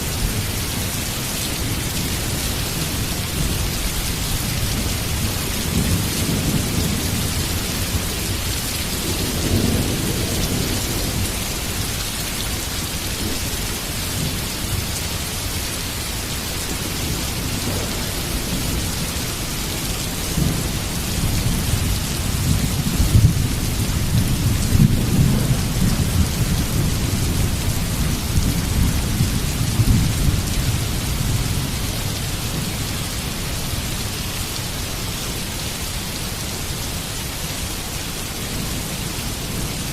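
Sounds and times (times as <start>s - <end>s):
heavy rain hiss: 0.0s - 39.9s
thunder rumbling: 1.6s - 12.0s, 16.7s - 32.8s.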